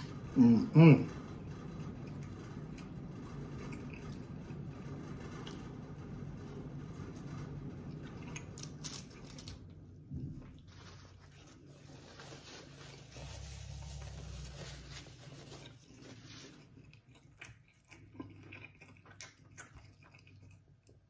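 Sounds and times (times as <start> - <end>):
person chewing: 15.0 - 21.0.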